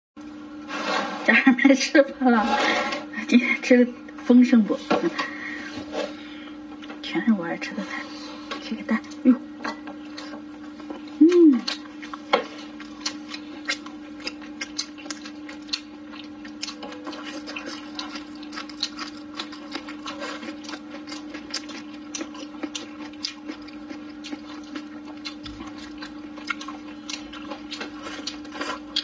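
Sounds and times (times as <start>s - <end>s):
steady low hum: 0.2s - 29.0s
wet chewing clicks and smacks: 12.8s - 29.0s.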